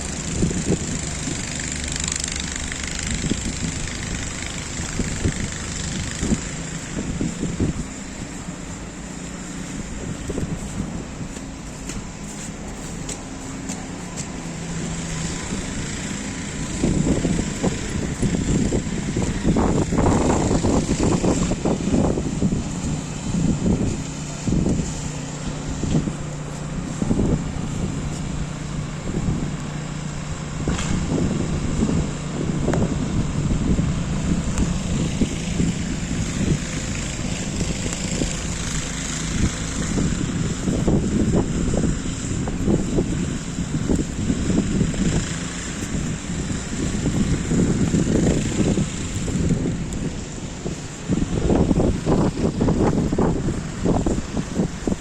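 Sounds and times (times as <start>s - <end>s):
motor vehicle running: 0.0s - 55.0s
wind buffeting microphone: 0.0s - 55.0s.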